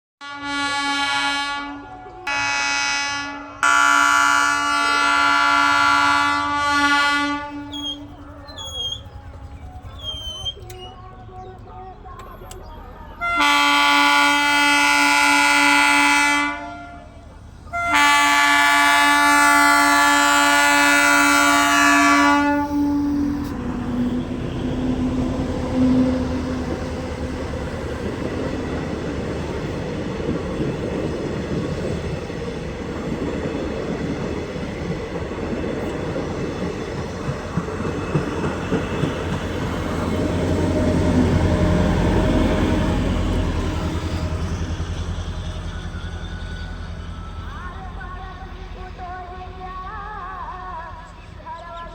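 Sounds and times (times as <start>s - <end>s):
train horn blasts: 0.2s - 8.4s, 13.2s - 29.5s, 38.0s - 44.8s
train wheels clicking over rail joints: 25.1s - 46.3s.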